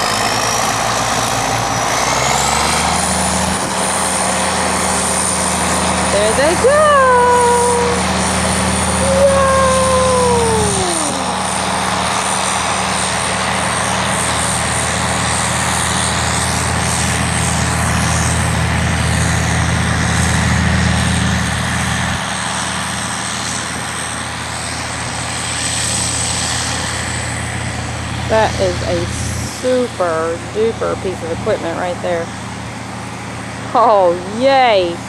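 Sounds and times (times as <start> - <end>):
combine harvester engine drone: 0.0 - 35.0
broad rushing noise: 1.3 - 14.5.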